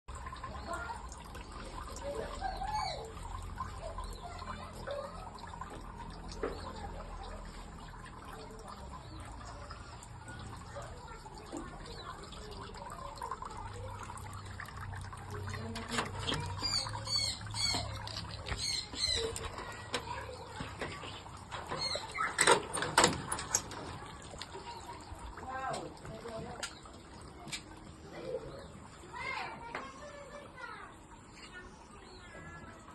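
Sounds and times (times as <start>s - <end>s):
bird chirping: 16.2s - 19.6s
sharp knocks and clatter: 19.3s - 24.0s.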